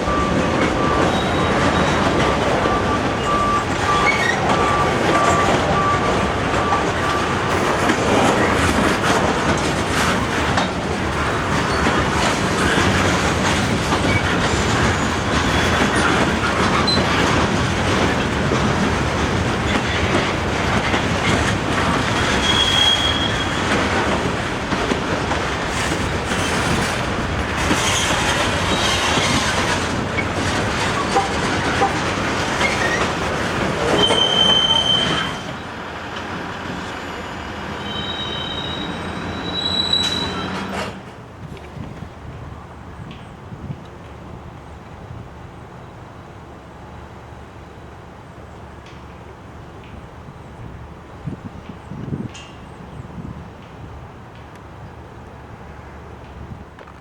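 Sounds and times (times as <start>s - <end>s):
train wheels clattering over rails: 0.0s - 44.2s
thin wheel squeal: 22.4s - 23.6s, 34.0s - 35.6s, 37.0s - 40.9s.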